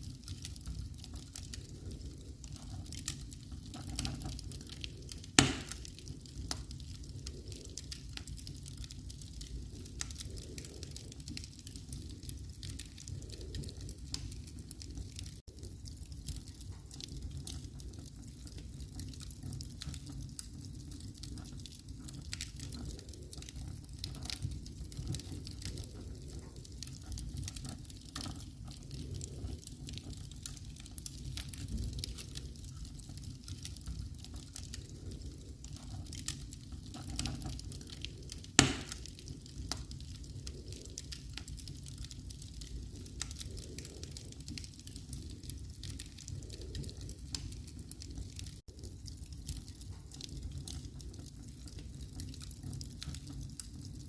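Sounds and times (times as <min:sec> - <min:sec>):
wood fire crackling: 0:00.0 - 0:54.0
sharp pop from fire: 0:05.4 - 0:05.8, 0:38.6 - 0:39.0.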